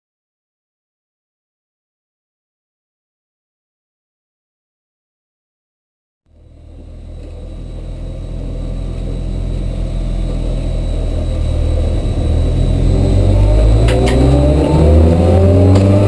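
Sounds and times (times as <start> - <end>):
race car engine revving: 6.3 - 16.0.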